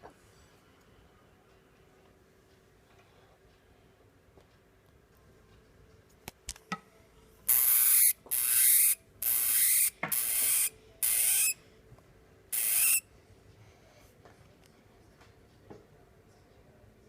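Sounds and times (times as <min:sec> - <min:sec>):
hamster hissing: 0:07.5 - 0:11.6, 0:12.5 - 0:13.0.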